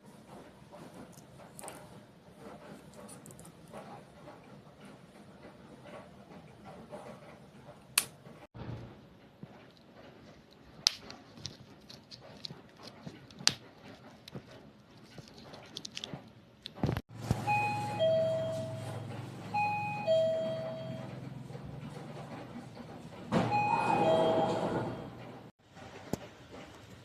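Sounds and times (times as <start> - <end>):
electronic ding-dong chime: 17.4 - 19.0, 19.6 - 21.1, 23.5 - 24.7.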